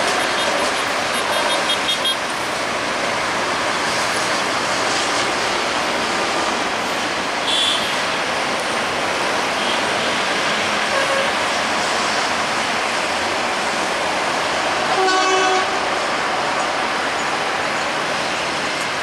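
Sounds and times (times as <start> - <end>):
train rushing along track: 0.0 - 19.0
train horn blast: 10.9 - 11.3, 14.9 - 15.8.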